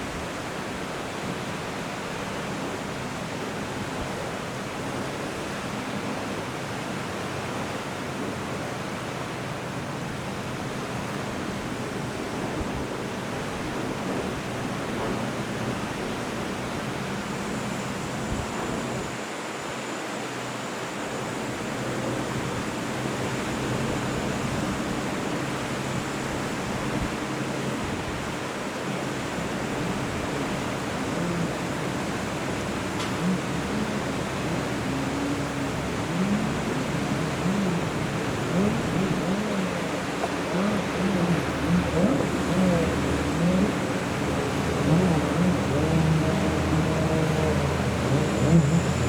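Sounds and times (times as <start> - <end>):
faint high whine: 14.9 - 49.0
low engine hum: 21.6 - 49.0
wind and water rushing: 23.2 - 49.0.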